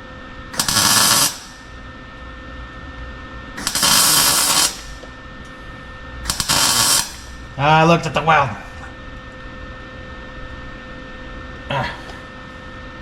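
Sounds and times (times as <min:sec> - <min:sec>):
welder arc noise: 0:00.5 - 0:01.9, 0:03.6 - 0:05.2, 0:06.2 - 0:08.3.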